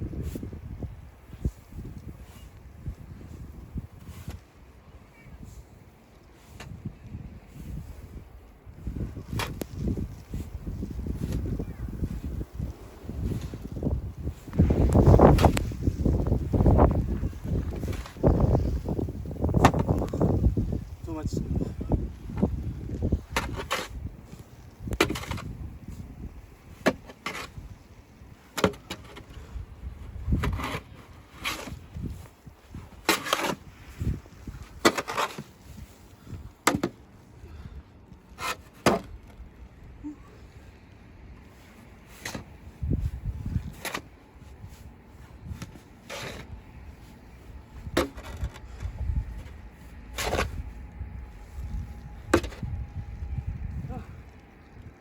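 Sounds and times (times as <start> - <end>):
snow shovel scraping snow: 9.4 - 19.0, 30.4 - 31.8, 32.8 - 35.9, 43.5 - 46.6, 49.4 - 50.6.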